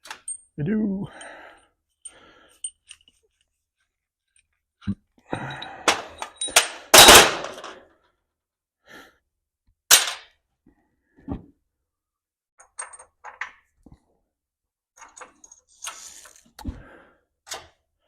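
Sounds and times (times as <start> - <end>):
metal tools clattering: 0.0 - 3.4, 5.5 - 7.8.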